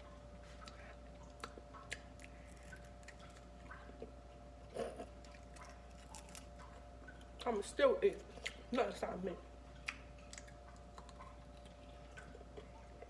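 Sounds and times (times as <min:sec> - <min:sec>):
person chewing chicken: 0:00.4 - 0:06.8, 0:09.8 - 0:13.0.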